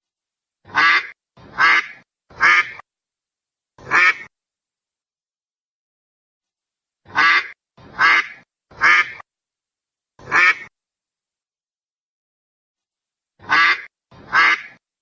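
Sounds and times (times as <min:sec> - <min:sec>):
duck quacking: 0:00.7 - 0:02.8, 0:03.8 - 0:04.3, 0:07.1 - 0:09.2, 0:10.2 - 0:10.7, 0:13.4 - 0:14.8.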